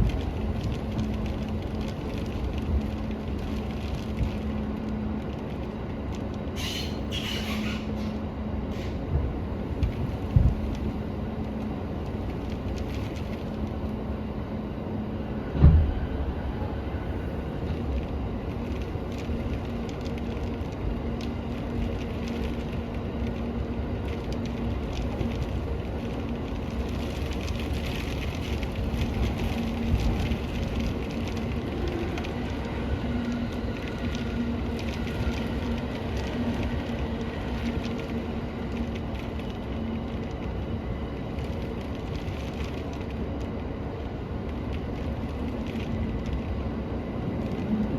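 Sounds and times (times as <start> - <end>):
train interior rumble and hum: 0.0 - 47.9
low thump: 15.5 - 16.2.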